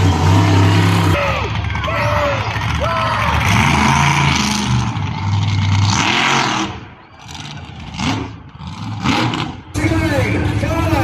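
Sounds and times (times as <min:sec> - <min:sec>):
vehicle engines revving: 0:00.0 - 0:11.0.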